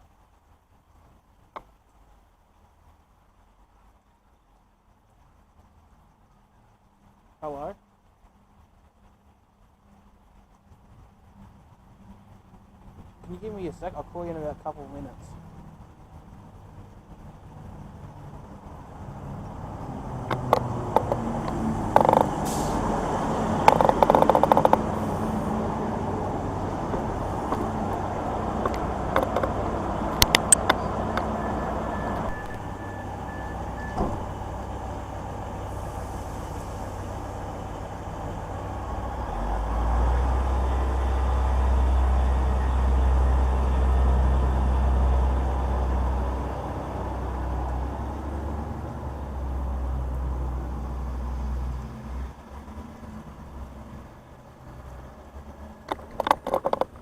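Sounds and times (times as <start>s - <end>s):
heavy vehicle engine rumbling: 0.0s - 57.0s
sharp clicks: 20.2s - 22.4s, 23.6s - 24.9s, 28.6s - 31.3s.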